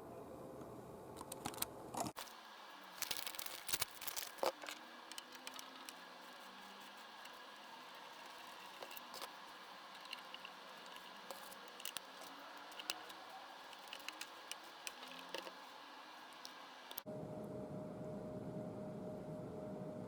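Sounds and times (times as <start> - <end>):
steady hum with held tone: 0.0 - 20.0
faint steady hiss: 2.1 - 17.1.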